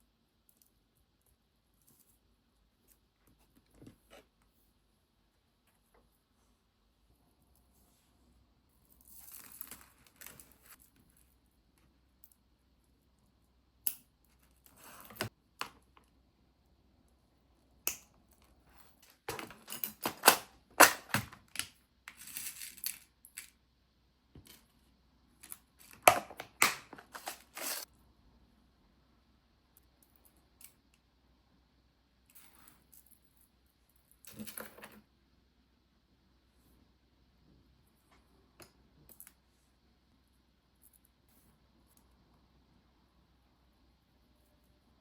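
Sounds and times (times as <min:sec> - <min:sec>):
small objects clicking and tapping: 0:17.9 - 0:23.6.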